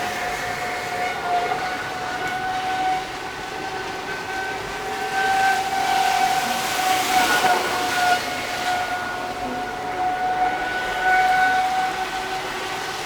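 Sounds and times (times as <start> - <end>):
electric boat motor whine: 0.0 - 13.0.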